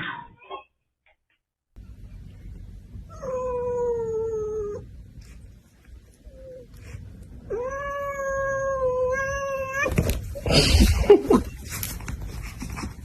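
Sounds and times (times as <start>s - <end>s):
cat yowling: 7.5s - 10.0s.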